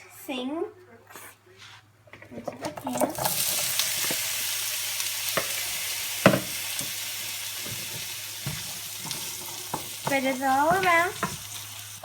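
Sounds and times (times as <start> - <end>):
vegetables sizzling in a frying pan: 2.8 - 12.0
utensil knocking against pan: 6.2 - 7.0, 7.6 - 11.5.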